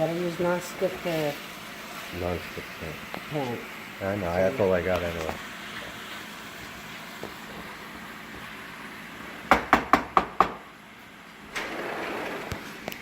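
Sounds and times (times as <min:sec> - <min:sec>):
chicken sizzling in pan: 0:00.0 - 0:09.5
utensil knocking on frying pan: 0:09.5 - 0:10.7.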